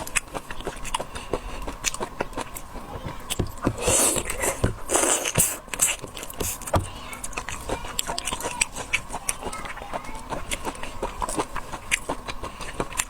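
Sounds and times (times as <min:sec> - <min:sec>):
chewing seafood clicks and crackles: 0:00.0 - 0:13.0
loud hissing: 0:03.7 - 0:07.1.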